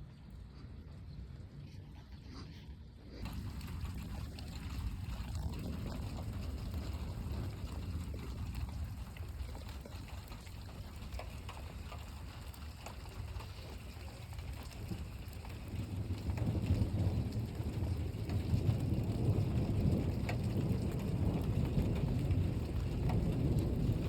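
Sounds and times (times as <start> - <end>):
trickling water: 0.0 - 24.0
low rumble: 0.1 - 12.0
steady rain: 3.2 - 24.0.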